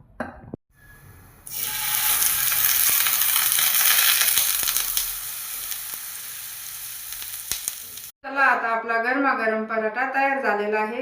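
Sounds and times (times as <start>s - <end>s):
flatbread sizzling in oil: 1.5s - 8.1s.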